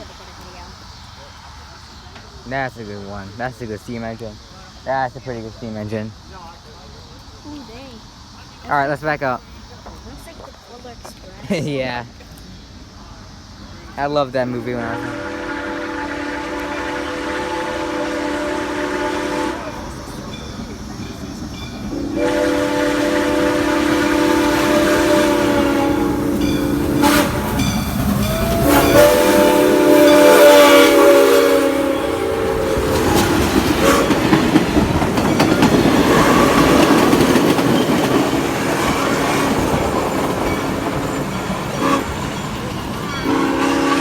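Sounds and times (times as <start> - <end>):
train rumbling on rails: 0.0 - 44.0
steam locomotive chime whistle: 14.6 - 34.4, 35.2 - 44.0.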